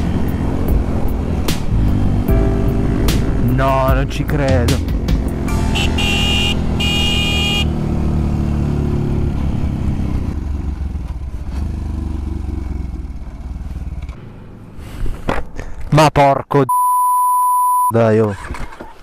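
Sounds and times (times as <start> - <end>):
motorcycle engine running: 0.0 - 14.8
high tone: 5.4 - 7.6.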